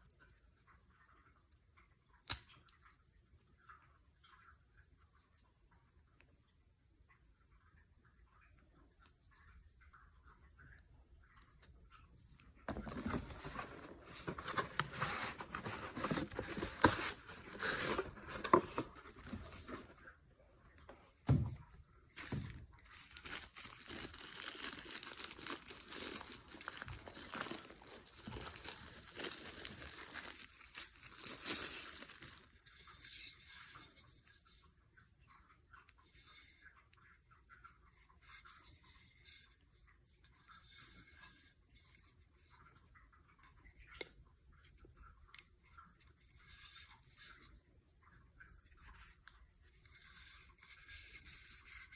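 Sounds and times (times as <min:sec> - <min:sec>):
packaging crinkling and rustling: 0:12.6 - 0:20.1, 0:22.2 - 0:32.7.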